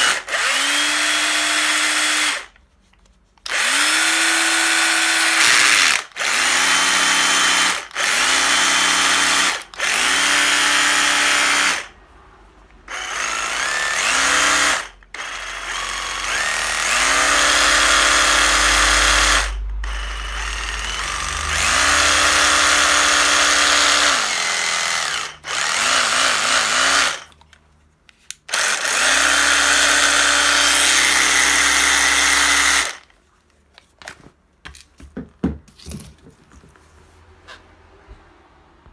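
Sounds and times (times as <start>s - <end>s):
cordless drill motor whining: 0.0s - 2.5s, 3.4s - 11.9s, 12.9s - 27.4s, 28.5s - 33.1s.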